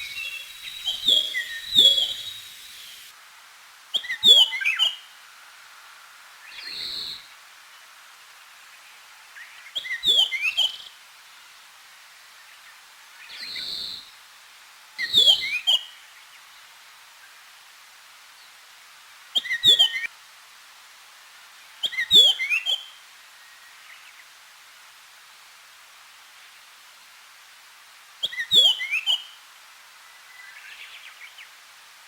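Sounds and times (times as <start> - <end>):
songbird singing: 0.0 - 3.1, 9.4 - 10.9, 28.2 - 29.4.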